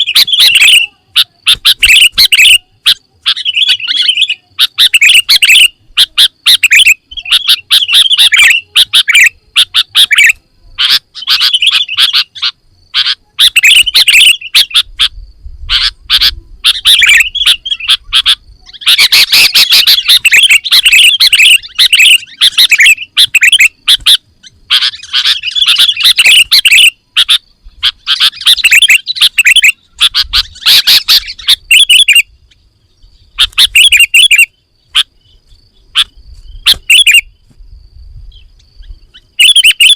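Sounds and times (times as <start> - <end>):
bird singing chattering chirps: 0.0 - 15.2, 15.8 - 37.5, 38.3 - 39.9.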